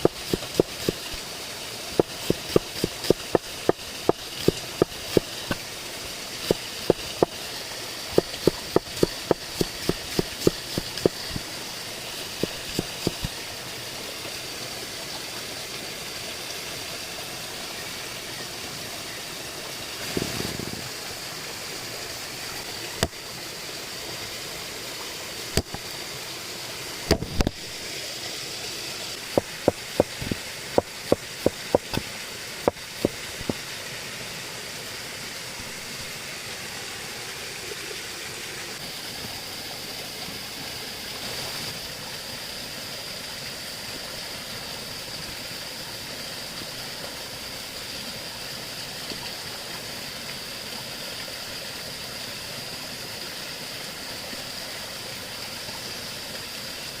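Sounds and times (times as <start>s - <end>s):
running water rushing: 0.0s - 57.0s
sharp knocks and clicks: 25.6s - 25.8s, 27.1s - 27.6s, 29.4s - 32.1s.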